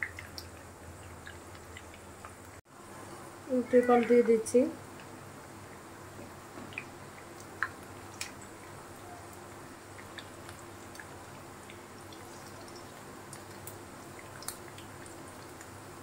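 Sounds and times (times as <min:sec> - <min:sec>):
meat sizzling in oil: 0:06.0 - 0:16.0.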